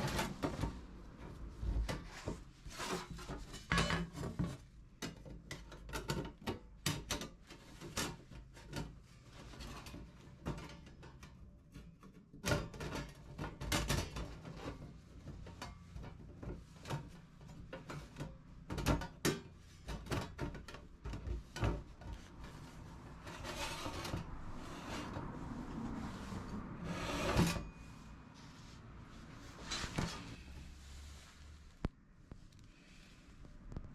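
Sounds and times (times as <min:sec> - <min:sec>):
rubbing or scraping: 0:00.0 - 0:04.8, 0:12.0 - 0:31.9
objects being handled: 0:00.0 - 0:32.6.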